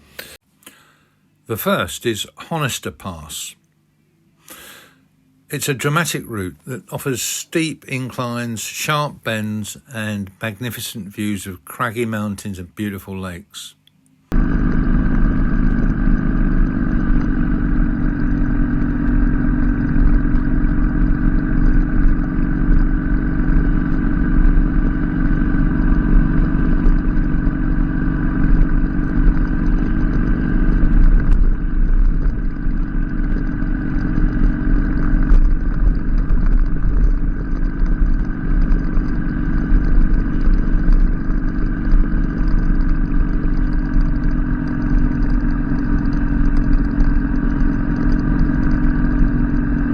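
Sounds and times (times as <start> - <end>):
motorcycle engine running: 14.3 - 49.9.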